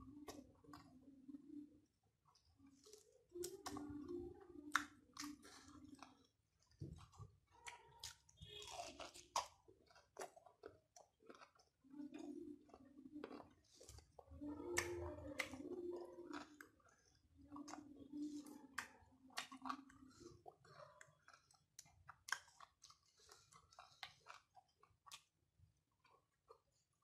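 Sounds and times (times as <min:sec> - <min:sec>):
wet mouth clicks: 0:04.6 - 0:06.2, 0:17.6 - 0:25.3
man chewing and lip smacking: 0:04.6 - 0:27.0.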